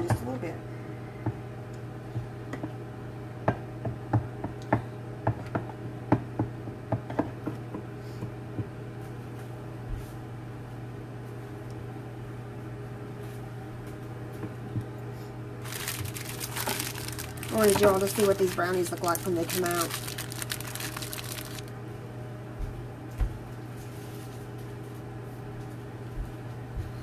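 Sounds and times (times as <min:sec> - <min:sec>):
microwave oven humming: 0:00.0 - 0:27.0.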